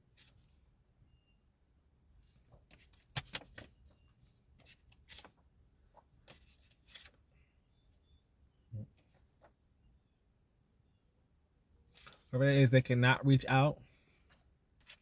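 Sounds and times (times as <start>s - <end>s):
cards being shuffled: 2.8s - 3.7s.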